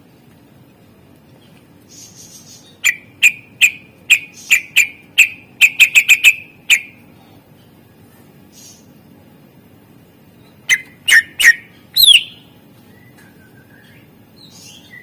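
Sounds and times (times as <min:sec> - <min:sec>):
soft raspy hiss: 0:00.0 - 0:03.2, 0:03.8 - 0:11.1
bird calling sharp chip notes: 0:10.7 - 0:12.5.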